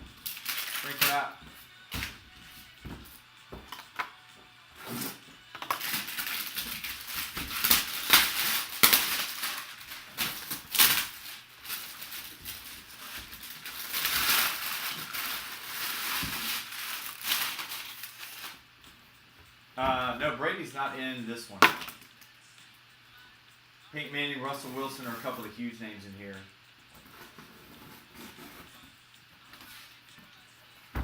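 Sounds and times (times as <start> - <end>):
plastic shrink wrap tearing: 0.2 - 1.3, 4.8 - 18.6.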